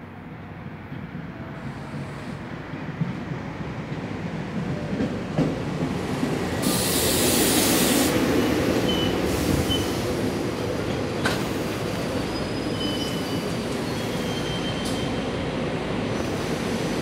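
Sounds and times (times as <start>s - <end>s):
train wheels rumbling on rails: 0.4s - 17.0s
loud hiss: 6.6s - 8.3s
high wheel squeals: 12.0s - 15.2s.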